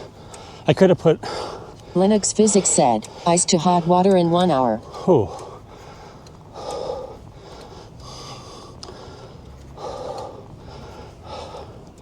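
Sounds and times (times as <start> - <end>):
cyclist breathing heavily: 0.0 - 12.0
low wind: 0.0 - 12.0
road rumble: 0.0 - 12.0.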